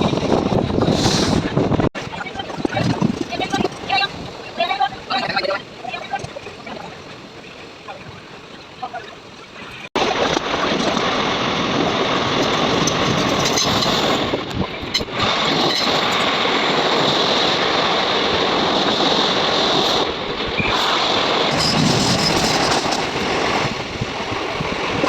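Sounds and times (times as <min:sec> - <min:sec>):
passenger train running: 0:10.0 - 0:25.0.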